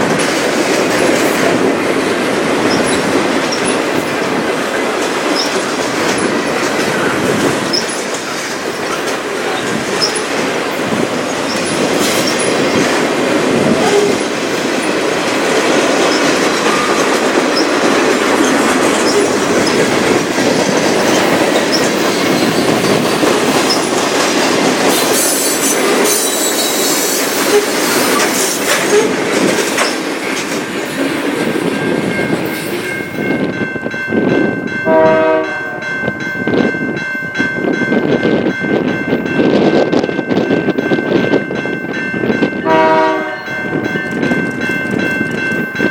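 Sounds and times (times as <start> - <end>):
train wheels clattering on rails: 0.0 - 45.9
train horn: 34.8 - 35.9, 42.6 - 43.7.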